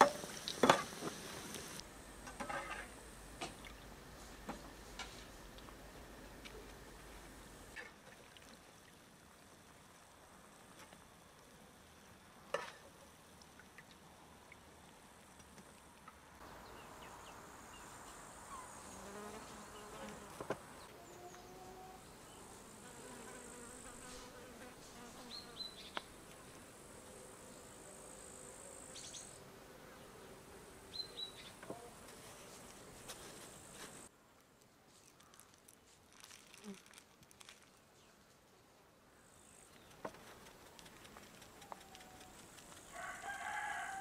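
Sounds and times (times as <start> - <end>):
flying insect buzzing: 21.0 - 26.6.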